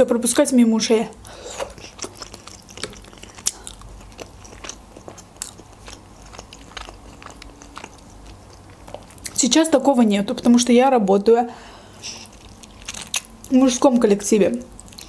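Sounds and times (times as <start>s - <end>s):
person chewing with wet mouth clicks: 1.5s - 9.4s.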